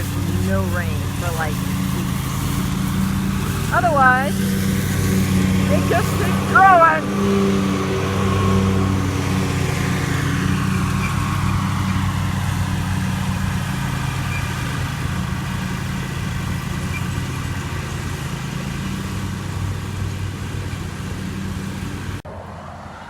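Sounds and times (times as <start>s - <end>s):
engine running steadily: 0.0s - 22.2s.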